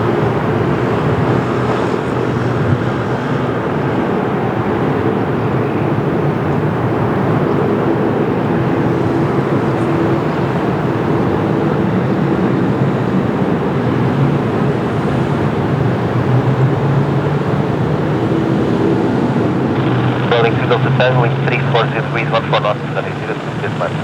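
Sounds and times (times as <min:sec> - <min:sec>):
jet engines rushing: 0:00.0 - 0:24.0
faint low hum: 0:19.8 - 0:24.0.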